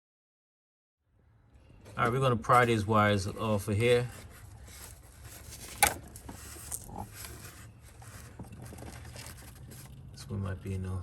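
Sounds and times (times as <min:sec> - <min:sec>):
handling noise: 0:01.8 - 0:10.2.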